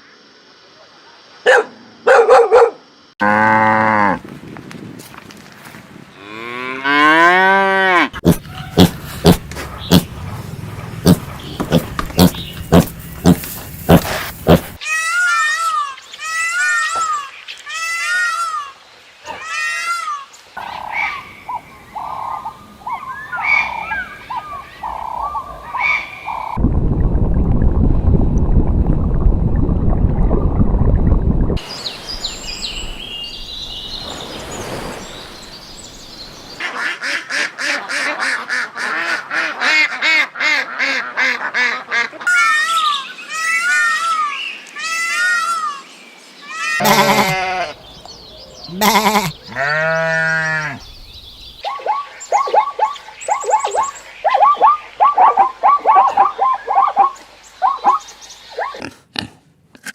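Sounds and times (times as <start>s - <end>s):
farm animals calling: 6.2s - 16.8s, 46.5s - 59.0s.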